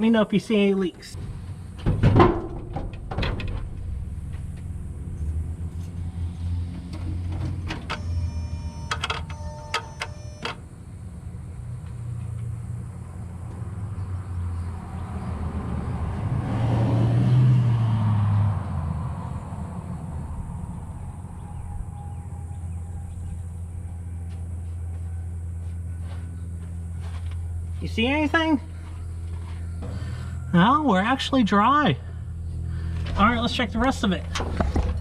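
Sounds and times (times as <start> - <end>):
electric fuel pump humming: 3.0 - 13.7.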